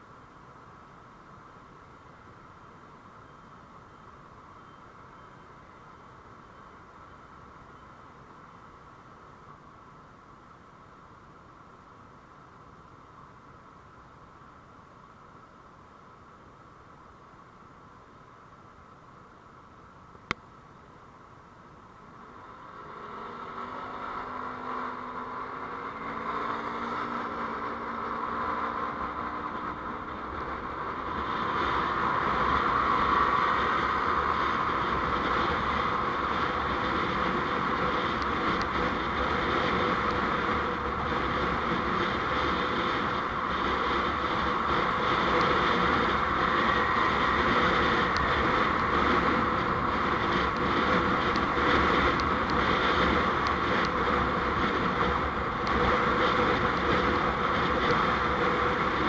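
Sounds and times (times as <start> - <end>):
road noise: 0.0 - 59.0
vehicle engine: 22.0 - 59.0.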